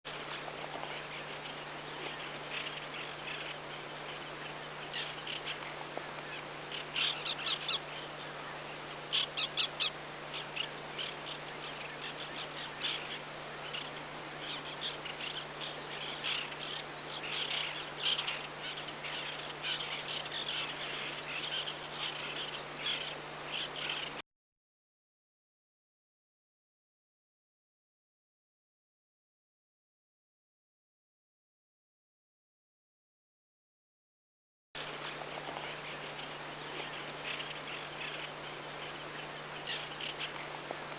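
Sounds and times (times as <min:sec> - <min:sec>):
terns calling: 0:00.1 - 0:24.2, 0:34.8 - 0:40.9.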